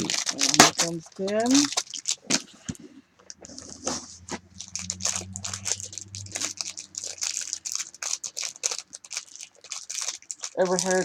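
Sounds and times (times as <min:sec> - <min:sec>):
plastic packaging crinkling: 0:00.0 - 0:02.8, 0:03.4 - 0:11.0.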